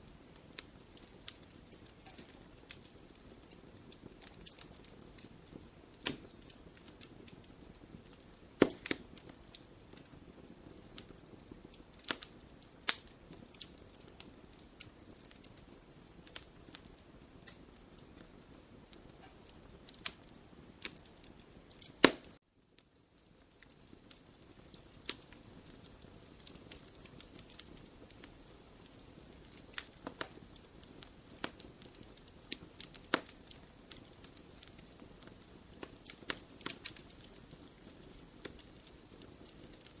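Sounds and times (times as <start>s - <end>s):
faint steady hiss: 0.0s - 40.0s
wood fire crackling: 0.0s - 40.0s.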